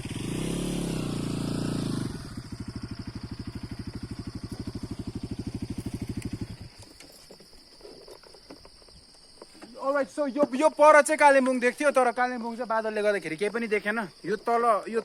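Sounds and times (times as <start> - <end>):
motorcycle engine revving: 0.0 - 7.0.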